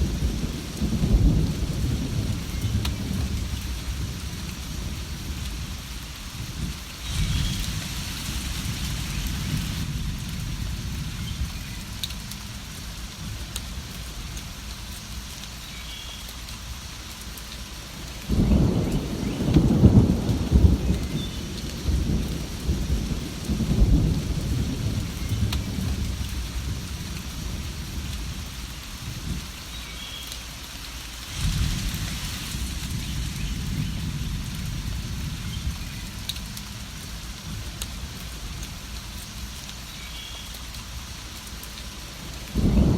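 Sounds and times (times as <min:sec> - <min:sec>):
rolling thunder: 0:00.0 - 0:13.9, 0:18.2 - 0:29.5, 0:31.3 - 0:38.6, 0:42.5 - 0:42.9
steady rain: 0:00.0 - 0:42.9.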